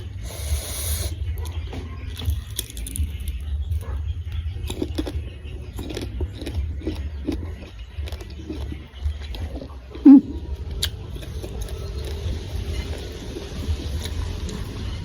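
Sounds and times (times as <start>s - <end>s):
crunchy chewing: 0.0s - 14.8s
wet mouth clicks: 10.0s - 11.0s.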